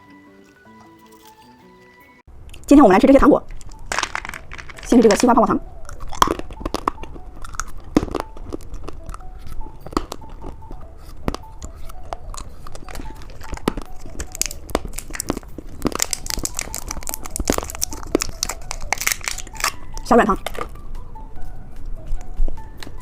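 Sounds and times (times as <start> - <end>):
plastic packaging crinkling: 3.5 - 5.3, 12.2 - 20.7.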